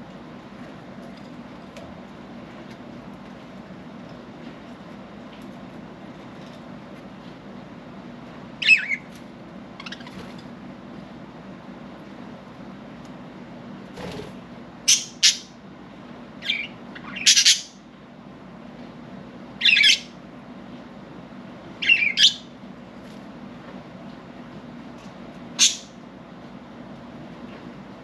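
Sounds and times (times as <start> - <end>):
budgerigars chirping and squawking: 9.8 - 10.2, 14.9 - 15.5, 16.4 - 17.8, 21.8 - 22.4, 25.6 - 25.9.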